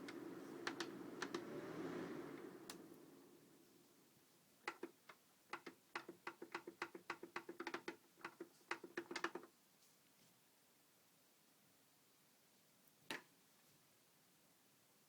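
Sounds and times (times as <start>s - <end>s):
humidifier sharp ticks: 0.0s - 1.5s
faint steady hum: 0.0s - 5.6s.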